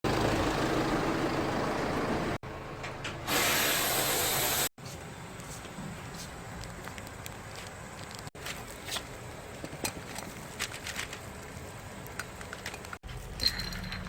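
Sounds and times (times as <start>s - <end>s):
pressurised gas hissing: 3.3s - 4.7s.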